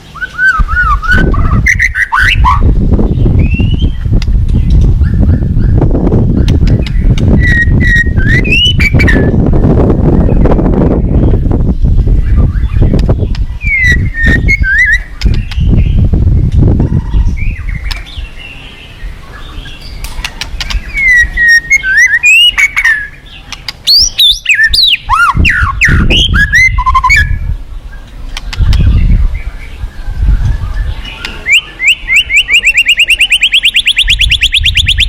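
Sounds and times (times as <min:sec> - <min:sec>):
bird singing whistled phrases: 0:00.1 - 0:04.0, 0:06.9 - 0:09.4, 0:13.6 - 0:16.0, 0:20.8 - 0:27.4, 0:30.5 - 0:35.0
low rushing rumble: 0:02.6 - 0:18.4.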